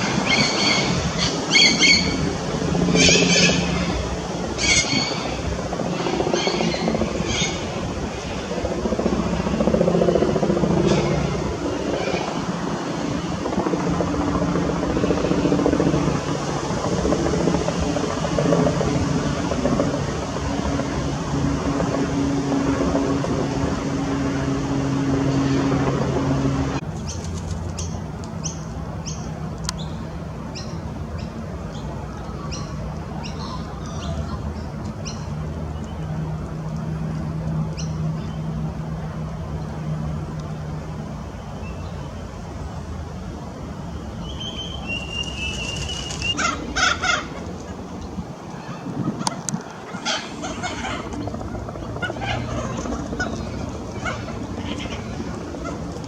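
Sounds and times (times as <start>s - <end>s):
cockatoos screeching: 0.0s - 2.3s, 2.9s - 7.8s, 44.4s - 47.7s, 48.5s - 56.0s
thin whistle: 44.2s - 46.4s
constant low tones: 45.8s - 56.0s.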